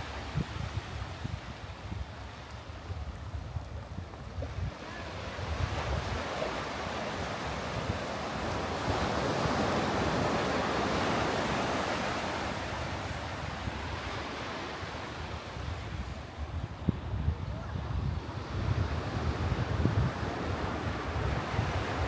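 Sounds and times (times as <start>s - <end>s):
wind rumbling on microphone: 15.2s - 22.0s.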